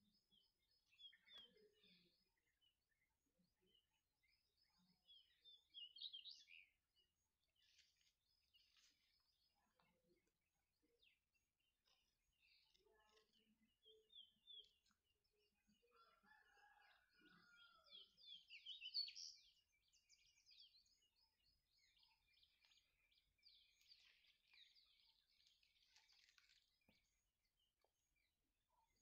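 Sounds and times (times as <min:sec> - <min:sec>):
small birds chirping and twittering: 0:00.0 - 0:29.0.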